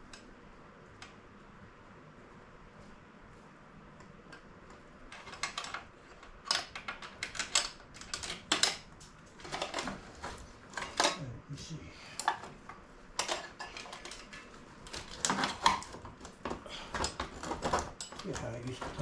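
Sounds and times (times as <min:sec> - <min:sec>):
hand tools clanking on metal: 0:10.7 - 0:11.3, 0:16.7 - 0:19.0.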